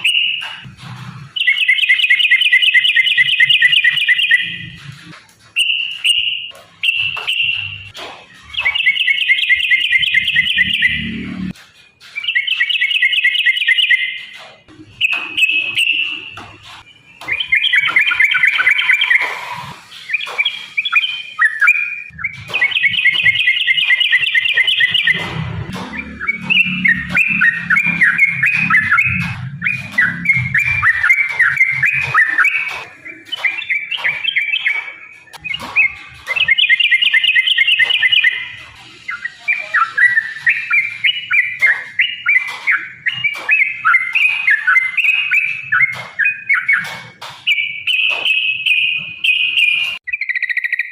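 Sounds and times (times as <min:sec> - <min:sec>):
bird bubbly chattering song: 0:17.1 - 0:25.2, 0:25.9 - 0:46.9.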